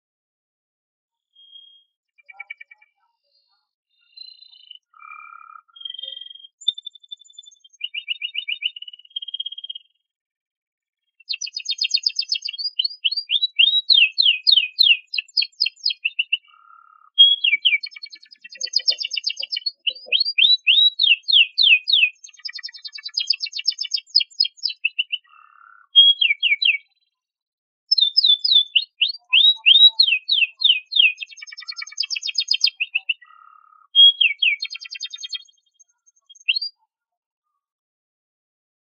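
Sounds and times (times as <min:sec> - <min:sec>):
canary singing trills: 0:01.3 - 0:09.9, 0:11.2 - 0:27.1, 0:27.9 - 0:37.6.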